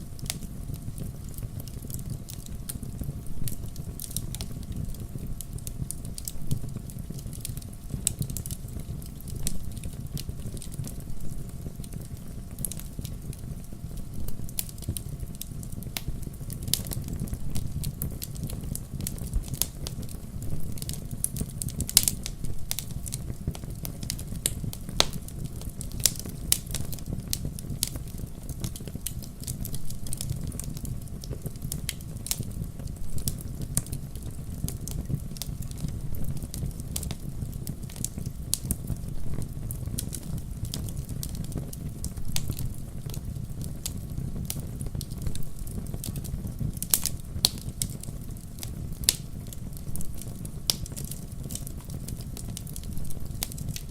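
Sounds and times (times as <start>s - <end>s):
low fire rumble: 0.0s - 53.9s
wood fire crackling: 0.0s - 53.9s
sharp pops of burning logs: 20.8s - 53.9s.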